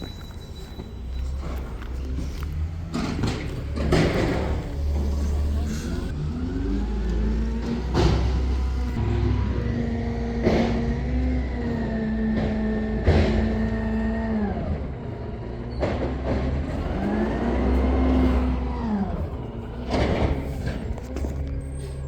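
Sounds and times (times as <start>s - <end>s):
garbage truck engine revving: 1.4s - 22.0s.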